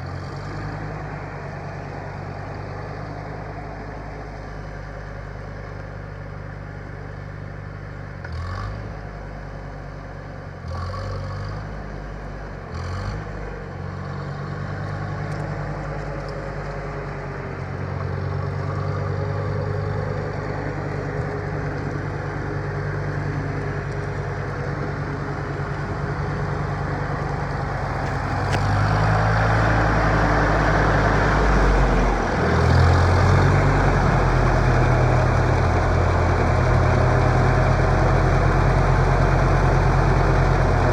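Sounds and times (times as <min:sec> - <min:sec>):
tractor engine running: 0:11.8 - 0:40.9.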